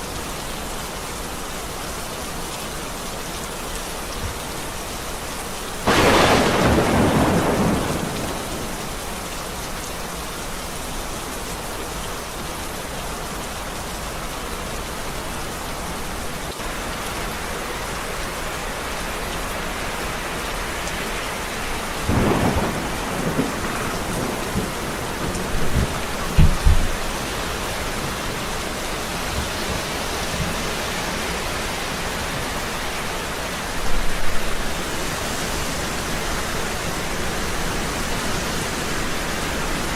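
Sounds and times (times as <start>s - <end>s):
heavy rain: 0.0s - 39.9s
thunder rumbling: 5.8s - 9.2s, 22.0s - 30.8s.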